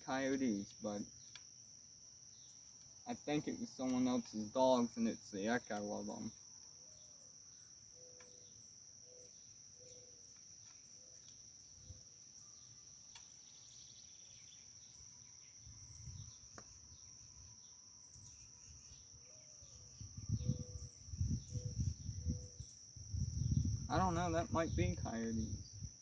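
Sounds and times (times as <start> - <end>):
crickets chirping: 0.0 - 26.0
wind rumble on microphone: 15.6 - 16.4, 19.6 - 26.0.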